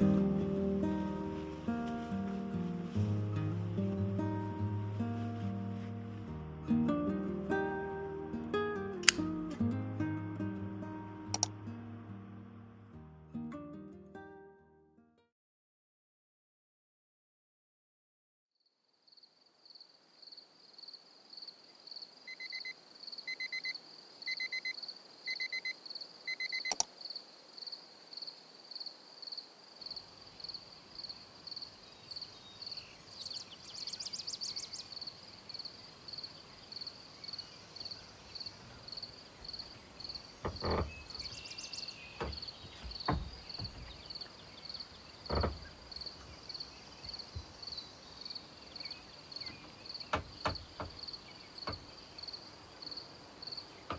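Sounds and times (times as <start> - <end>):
insect chirping: 18.8 - 53.9
dull knocks: 40.4 - 41.5, 42.2 - 44.4, 45.2 - 46.4, 49.5 - 51.9.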